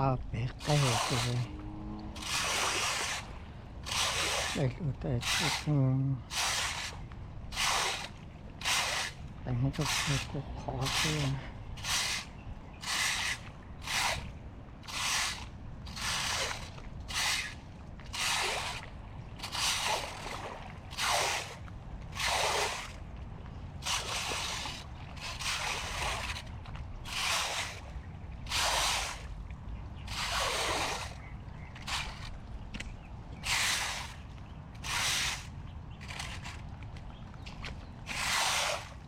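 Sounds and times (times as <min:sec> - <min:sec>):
steady low rumble: 0:00.0 - 0:17.1
floodwater sloshing and splashing: 0:00.0 - 0:39.0.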